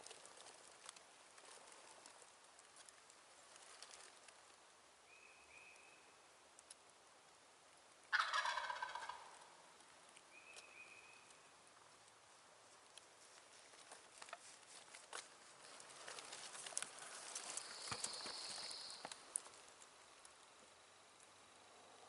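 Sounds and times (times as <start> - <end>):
turkey gobbling: 8.1 - 9.6.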